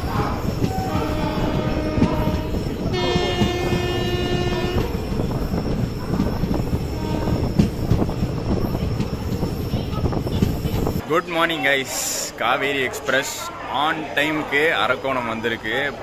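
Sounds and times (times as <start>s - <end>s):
train wheels clattering on rails: 0.0s - 11.0s
train horn: 0.7s - 5.0s, 6.9s - 7.6s.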